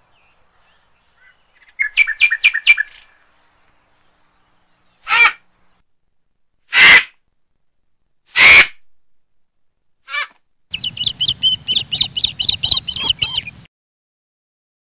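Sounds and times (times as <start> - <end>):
birds calling harshly: 0.0 - 5.7, 10.1 - 13.7
high bird chirps: 0.1 - 3.2, 10.7 - 13.7.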